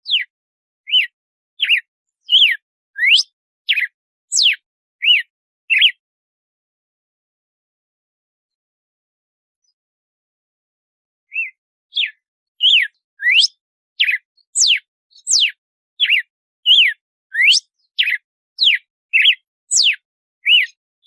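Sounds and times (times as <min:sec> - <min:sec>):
bird singing whistled notes: 0:00.0 - 0:06.0, 0:11.3 - 0:20.8.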